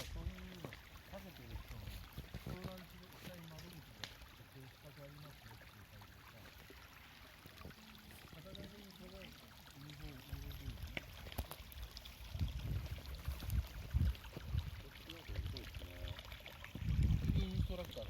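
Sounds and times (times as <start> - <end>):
bonfire crackling and popping: 2.0 - 4.3, 10.8 - 14.6.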